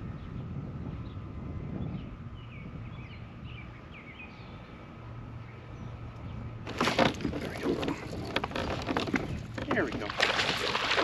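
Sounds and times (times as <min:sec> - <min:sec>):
outdoor background noise: 0:00.0 - 0:11.0
small birds chirping: 0:01.8 - 0:06.5
loud knocks and clatter: 0:06.7 - 0:11.0.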